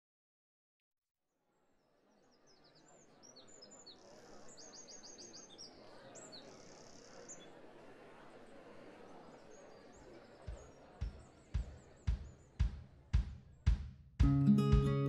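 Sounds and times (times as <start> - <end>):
small birds chirping and singing: 2.2 - 7.6.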